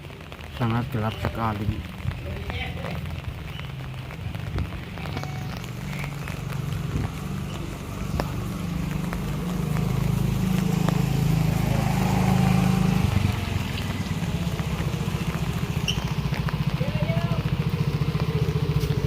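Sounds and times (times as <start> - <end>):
motorcycle engine running: 3.8 - 19.0.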